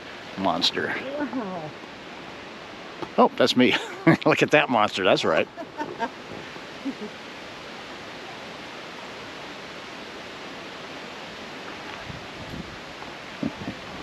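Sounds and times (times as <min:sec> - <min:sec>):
small waterfall rushing: 0:00.0 - 0:14.0.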